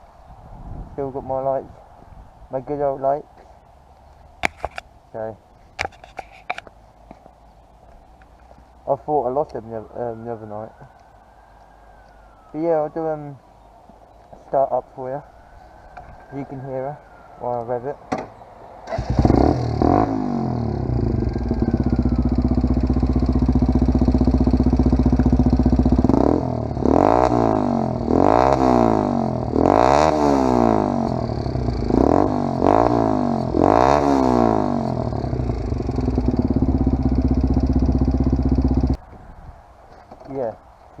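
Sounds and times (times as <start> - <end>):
motorcycle engine idling and revving: 18.8 - 39.0.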